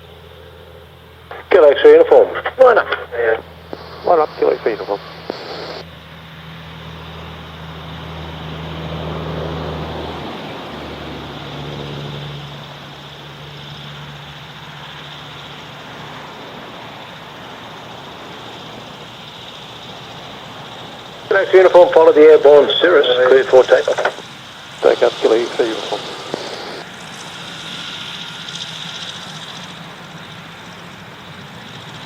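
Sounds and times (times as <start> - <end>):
propeller aircraft passing: 0.0 - 32.0.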